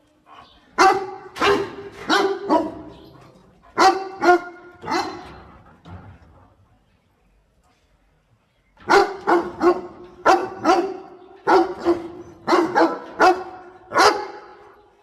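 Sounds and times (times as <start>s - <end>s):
dog barking: 0.8s - 3.0s, 3.8s - 5.3s, 8.9s - 14.6s.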